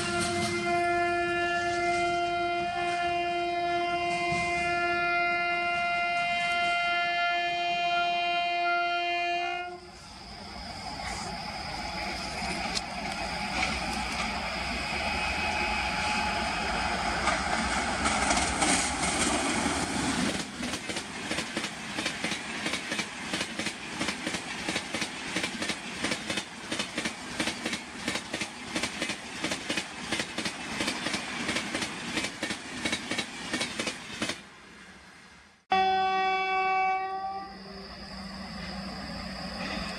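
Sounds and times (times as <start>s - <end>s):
train wheels clattering: 0.0s - 0.7s, 15.4s - 34.4s
train passing rumble: 0.0s - 35.7s, 36.6s - 39.9s.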